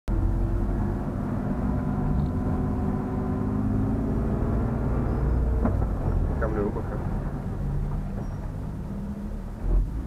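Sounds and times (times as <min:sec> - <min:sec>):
car engine running at low revs: 0:00.1 - 0:10.0.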